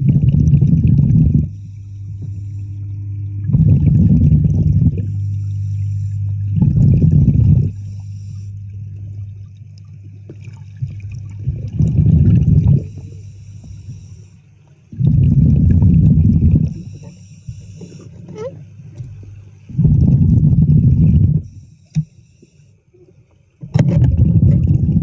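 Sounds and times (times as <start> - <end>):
exhaled bubbles rumbling: 0.0 - 21.6, 23.6 - 25.0
steady low hum: 0.0 - 25.0
air hissing through regulator: 1.2 - 9.0, 11.5 - 15.6, 16.6 - 20.2, 21.0 - 22.8.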